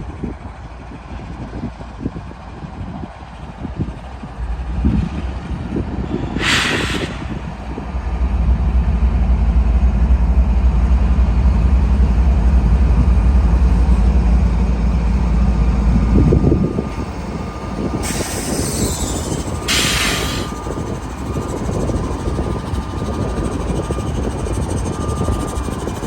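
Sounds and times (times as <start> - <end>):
train rumbling past: 0.0 - 26.0
train wheels squealing: 5.7 - 7.8, 16.0 - 26.0
short hiss: 6.4 - 7.7.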